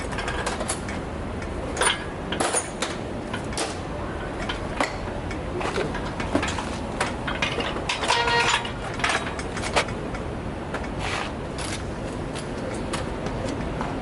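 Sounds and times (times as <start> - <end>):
metallic clicks and knocks: 0.0 - 11.0.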